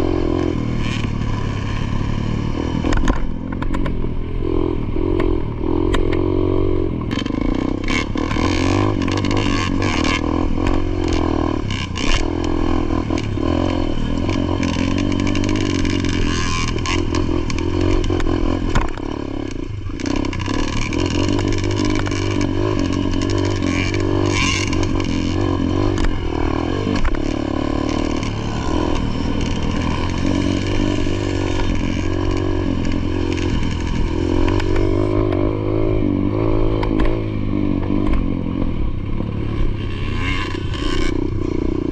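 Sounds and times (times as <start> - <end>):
dirt bike engine revving: 0.0 - 41.9
bike rattling and clattering: 7.1 - 35.4.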